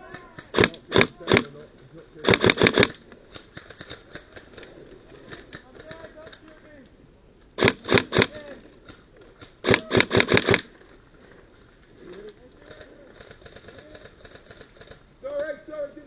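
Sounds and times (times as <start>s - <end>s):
airsoft gun shots: 0.1s - 1.5s, 2.2s - 3.0s, 7.6s - 8.5s, 9.6s - 10.7s.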